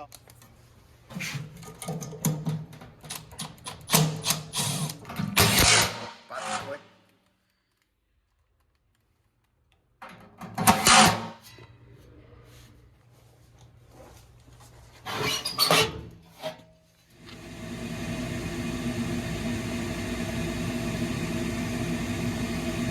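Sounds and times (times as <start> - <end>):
parts clattering and rubbing: 13.6 - 17.1
furnace motor whirring: 17.1 - 22.9.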